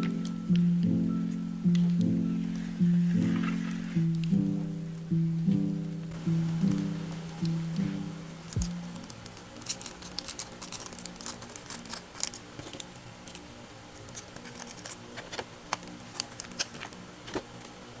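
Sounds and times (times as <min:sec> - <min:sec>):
faint background music: 0:00.0 - 0:18.0
packing materials crinkling: 0:08.5 - 0:18.0.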